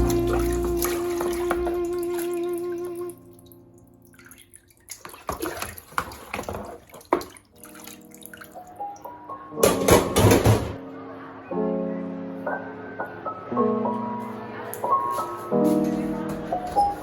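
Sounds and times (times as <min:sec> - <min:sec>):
soft background music: 0:00.0 - 0:05.6, 0:07.0 - 0:17.0
running water rushing: 0:00.0 - 0:08.8
water splashing and dripping: 0:00.0 - 0:10.3.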